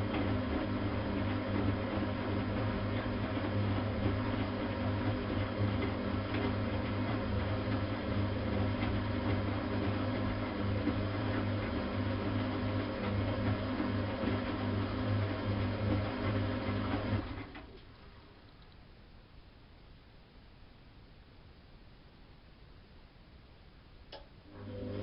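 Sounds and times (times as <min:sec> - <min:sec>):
washing machine humming: 0:00.0 - 0:18.4, 0:24.1 - 0:25.0.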